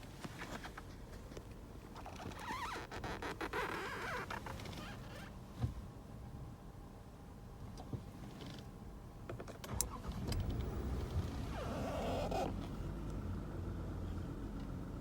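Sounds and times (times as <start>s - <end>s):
car engine rumble: 4.3s - 15.0s.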